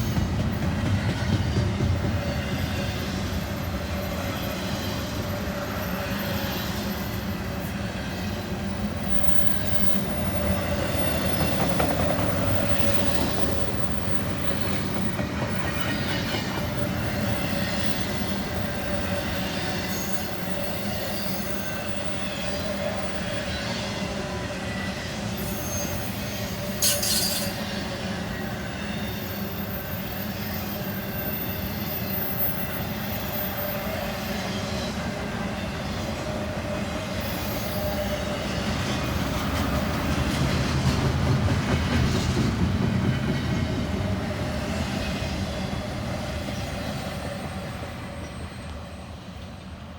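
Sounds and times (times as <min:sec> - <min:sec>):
freight train cars rolling: 0:00.0 - 0:49.9
faint wheel squeal: 0:24.8 - 0:27.7
sharp metal clank: 0:26.8 - 0:27.5.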